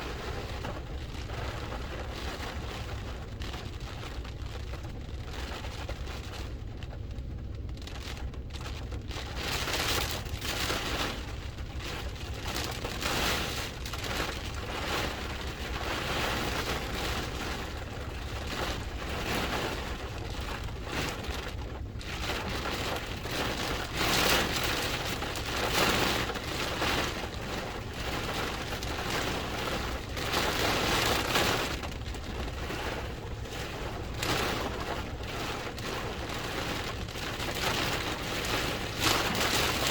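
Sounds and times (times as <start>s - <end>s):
heavy rain: 0.0s - 39.9s
low rumble: 0.0s - 39.9s
gusting wind: 8.4s - 39.9s.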